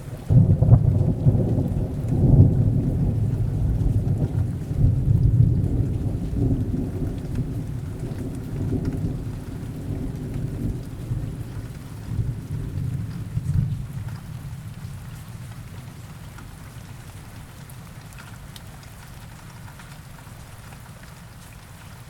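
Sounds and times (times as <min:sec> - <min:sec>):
rain falling: 0:00.0 - 0:22.0
thunder rolling: 0:00.3 - 0:14.7.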